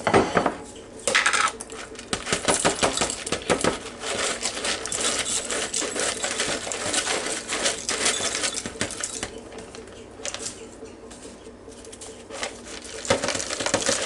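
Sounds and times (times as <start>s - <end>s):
fried onions crackling and rattling: 1.1s - 10.6s, 12.3s - 14.0s.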